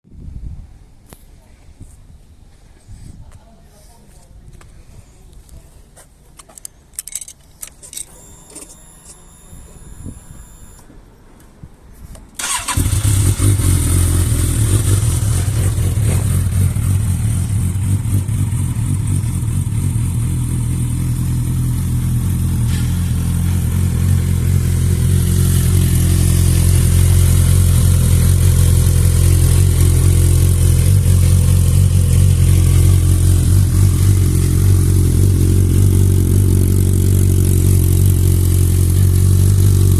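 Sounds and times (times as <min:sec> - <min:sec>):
motorcycle engine starting and idling: 0:12.3 - 0:39.9.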